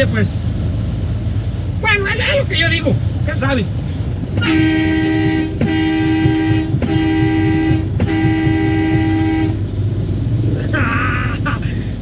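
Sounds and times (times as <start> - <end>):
truck engine rumble: 0.0 - 12.0
truck air horn blasts: 4.3 - 9.7.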